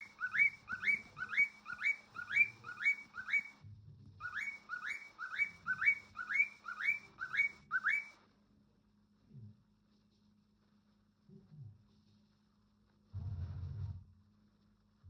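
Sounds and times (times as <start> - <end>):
cockatiel whistling rising note: 4.2 - 8.1.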